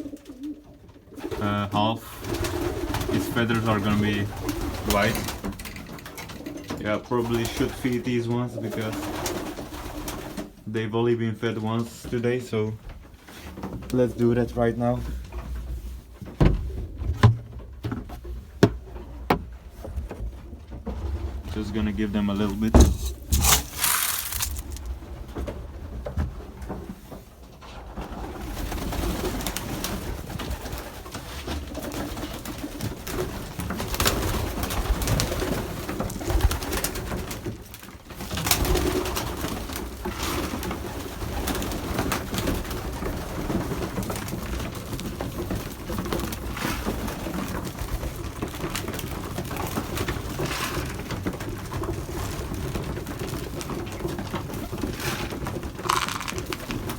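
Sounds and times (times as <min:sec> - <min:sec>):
pigeons cooing: 0:00.0 - 0:10.5
short knocks: 0:16.2 - 0:20.1.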